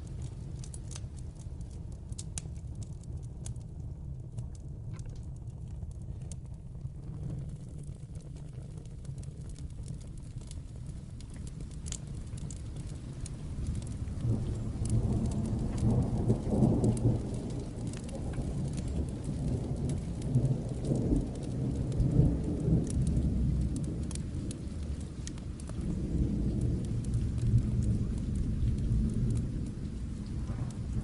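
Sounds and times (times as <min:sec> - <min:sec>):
light sharp crackles: 0:00.0 - 0:31.0
steady rain: 0:00.0 - 0:31.0
distant thunder rumbling: 0:12.9 - 0:31.0.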